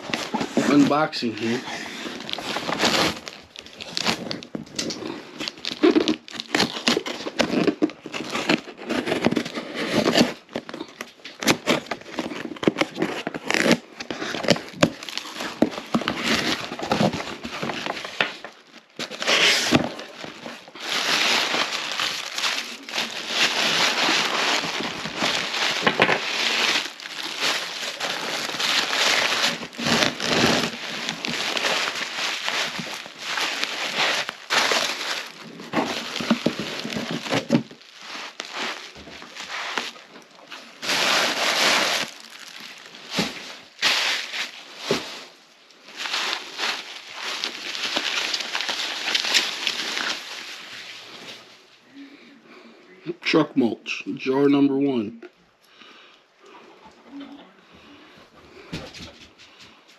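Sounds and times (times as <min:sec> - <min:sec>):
packaging crinkling and tearing: 0:00.0 - 0:51.7.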